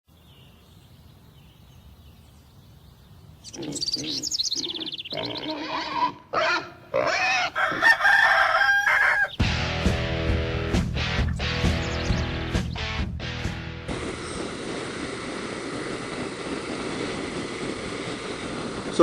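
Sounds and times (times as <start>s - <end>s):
loud animal calls: 3.5s - 9.4s
music: 9.4s - 14.3s.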